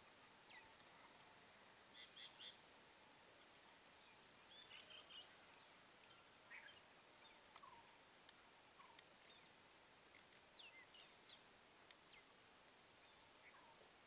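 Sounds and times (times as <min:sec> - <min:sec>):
low steady hiss: 0:00.0 - 0:14.0
faint bird chirps: 0:00.2 - 0:02.7, 0:03.3 - 0:13.9.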